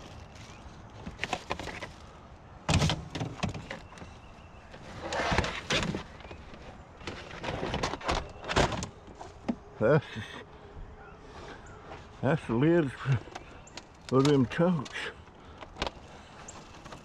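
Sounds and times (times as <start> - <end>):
plastic scraping: 0.0 - 9.5.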